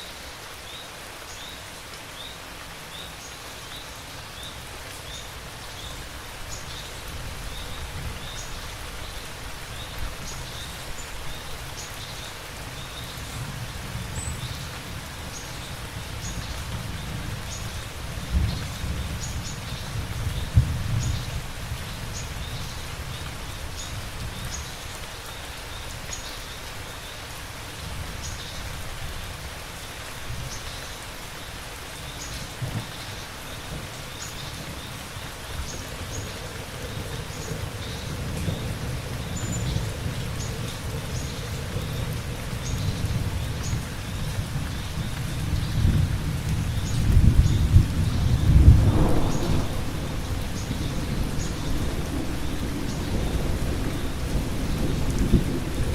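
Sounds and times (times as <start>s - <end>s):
steady rain falling: 0.0s - 55.9s
low rumbling thunder: 35.5s - 55.9s.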